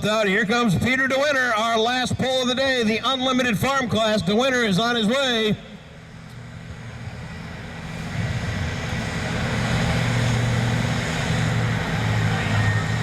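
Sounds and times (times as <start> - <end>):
diesel tractor engine under load: 5.8 - 13.0.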